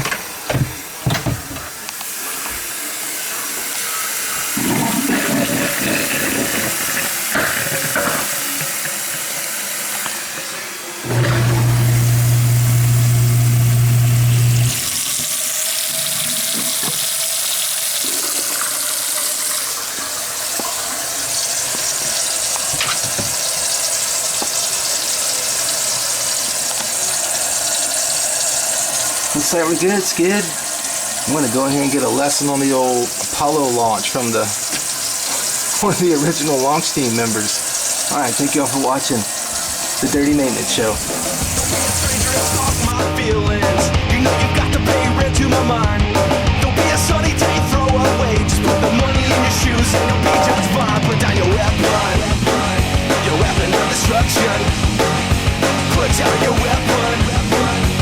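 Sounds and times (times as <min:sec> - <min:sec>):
garbage disposal humming: 0:00.0 - 0:43.0
tap water running into sink: 0:00.0 - 0:43.0.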